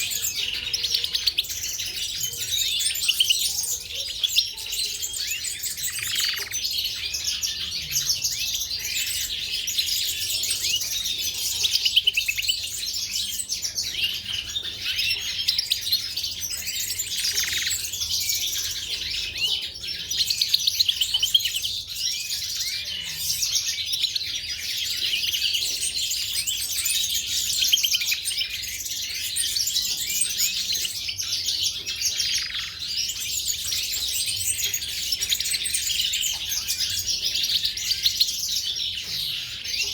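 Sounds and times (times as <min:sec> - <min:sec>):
canaries and finches singing: 0:00.0 - 0:39.9.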